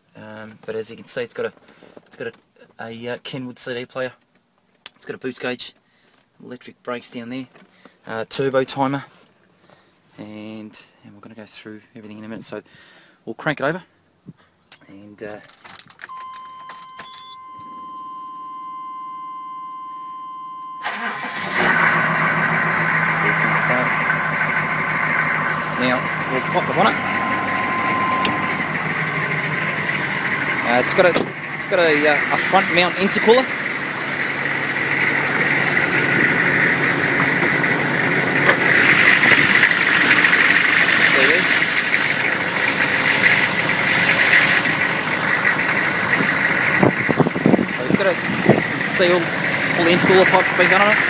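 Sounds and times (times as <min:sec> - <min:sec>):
car engine starting and running: 0:15.4 - 0:51.0
electronic warning chime: 0:16.1 - 0:21.6, 0:25.8 - 0:30.9
steady whine: 0:16.1 - 0:51.0
low rumble: 0:21.8 - 0:38.8.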